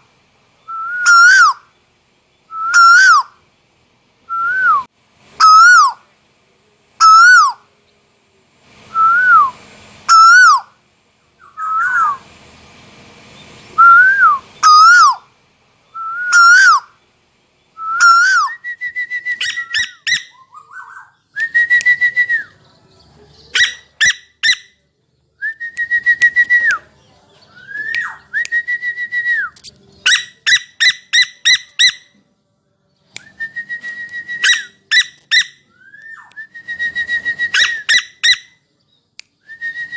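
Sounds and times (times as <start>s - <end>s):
owl whistled calls: 0.6s - 1.7s, 2.5s - 3.4s, 4.3s - 6.1s, 7.0s - 7.7s, 8.9s - 10.8s, 11.4s - 12.2s, 13.8s - 15.3s, 15.9s - 17.0s, 17.8s - 22.6s, 23.5s - 24.8s, 27.6s - 32.1s, 33.3s - 38.6s.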